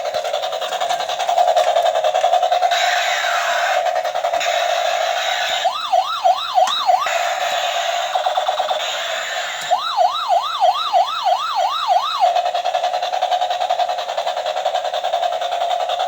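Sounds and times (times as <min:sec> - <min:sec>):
electronic siren wail: 0:04.4 - 0:12.5.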